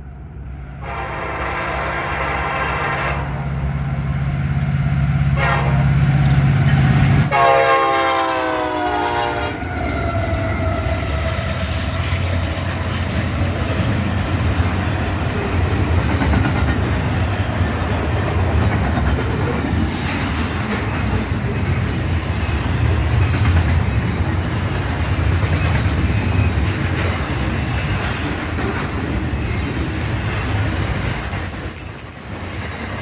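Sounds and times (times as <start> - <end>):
locomotive engine drone: 0.0 - 33.0
train wheels rumbling on rail: 0.0 - 33.0
train air horn: 0.8 - 3.5, 5.3 - 6.2, 7.2 - 11.1.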